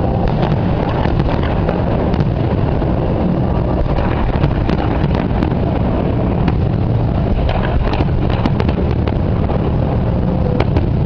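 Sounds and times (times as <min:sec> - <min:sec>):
fireworks cracks and pops: 0:00.0 - 0:11.0
fireworks rumbling: 0:00.0 - 0:11.0
wind buffeting microphone: 0:00.0 - 0:11.0.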